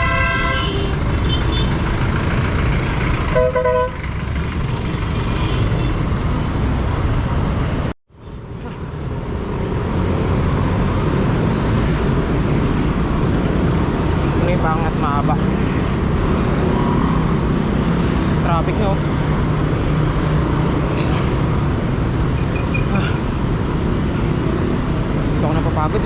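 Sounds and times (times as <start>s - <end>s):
vehicle horn: 0.0s - 1.7s, 3.3s - 4.0s, 5.2s - 6.1s
road traffic: 0.0s - 26.0s.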